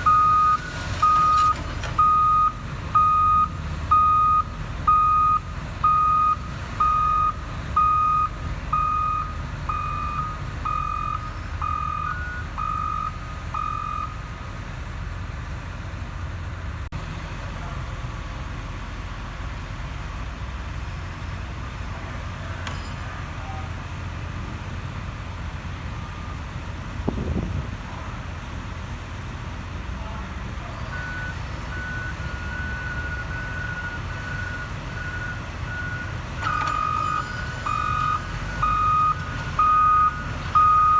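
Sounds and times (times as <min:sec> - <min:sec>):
diesel machinery rumble: 0:00.0 - 0:40.9
backup alarm beeping: 0:00.1 - 0:14.2, 0:31.0 - 0:40.9
higher-pitched backup alarm: 0:00.1 - 0:14.2.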